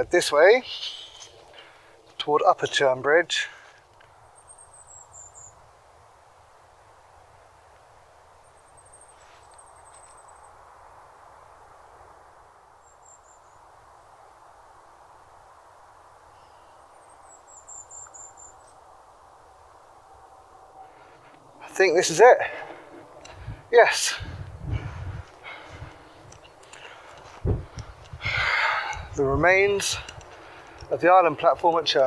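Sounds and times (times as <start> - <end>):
soft steady hiss: 0.0 - 32.0.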